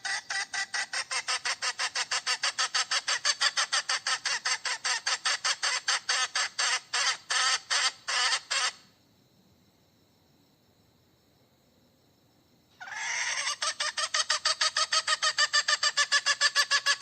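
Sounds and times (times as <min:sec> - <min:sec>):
hen cackling: 0:00.0 - 0:08.8, 0:12.8 - 0:17.0.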